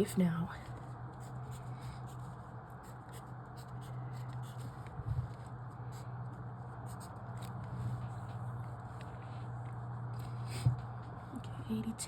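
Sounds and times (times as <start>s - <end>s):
steady low hum: 0.0s - 12.0s
pencil writing on paper: 0.7s - 9.2s.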